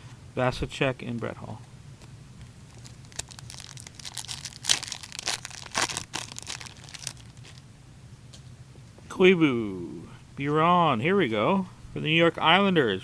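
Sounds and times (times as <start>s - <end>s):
foil wrapper tearing and crinkling: 2.7s - 7.6s.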